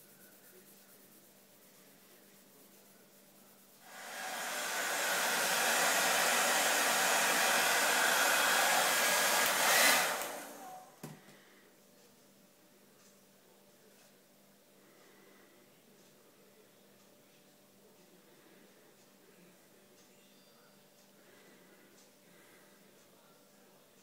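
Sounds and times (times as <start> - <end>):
blown air rushing: 3.9 - 10.8.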